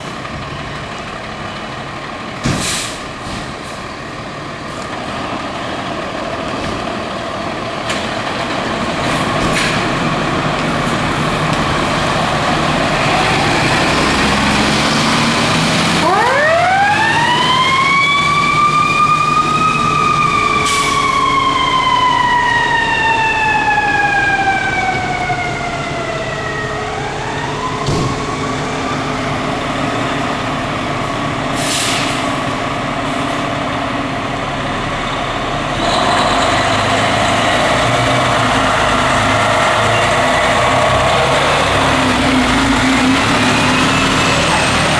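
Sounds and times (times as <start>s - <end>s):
diesel engine rumbling: 0.0s - 44.9s
siren wailing: 14.7s - 29.3s.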